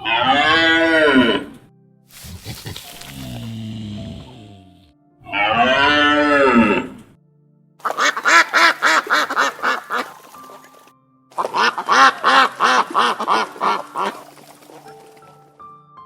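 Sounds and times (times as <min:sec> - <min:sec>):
cattle mooing: 0:00.1 - 0:07.0
duck quacking rapidly: 0:07.8 - 0:10.2, 0:11.4 - 0:14.2.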